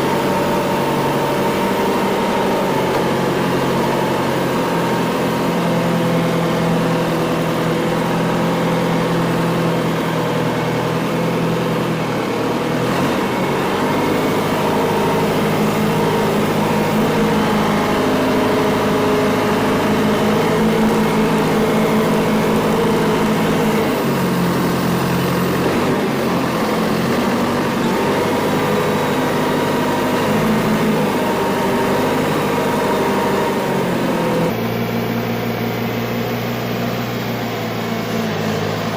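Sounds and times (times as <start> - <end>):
backhoe engine running: 0.0 - 38.9.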